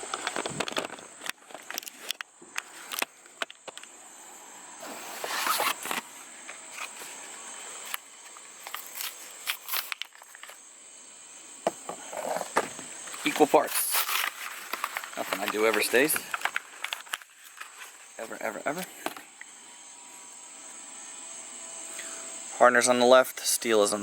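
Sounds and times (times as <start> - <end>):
faint high whine: 0.0 - 24.0
rustling scrape: 4.8 - 7.8, 12.0 - 19.1.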